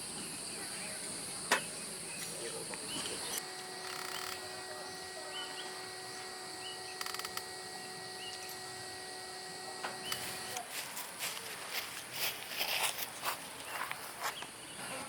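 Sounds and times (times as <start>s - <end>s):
bird chirping: 0.0s - 8.8s, 10.0s - 10.5s, 13.4s - 15.0s
faint steady hum: 0.0s - 15.0s
insects droning: 0.0s - 15.0s.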